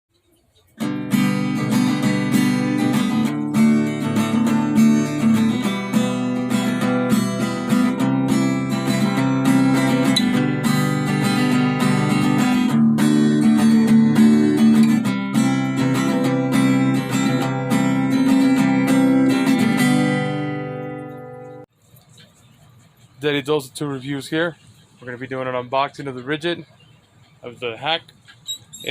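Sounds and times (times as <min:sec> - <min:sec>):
strummed acoustic guitar: 0:00.8 - 0:23.6.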